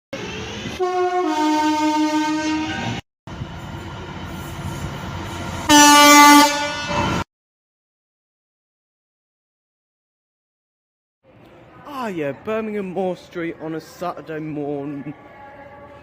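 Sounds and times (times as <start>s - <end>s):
rail running noise: 0.2s - 7.2s
two-tone train horn: 0.7s - 3.0s, 5.6s - 7.2s.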